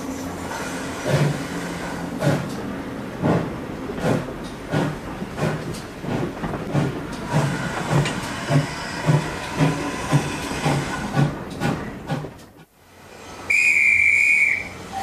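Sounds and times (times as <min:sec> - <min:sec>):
steam locomotive exhaust beats: 0:00.0 - 0:15.0
train running noise: 0:00.0 - 0:15.0
steam hiss: 0:06.7 - 0:11.3.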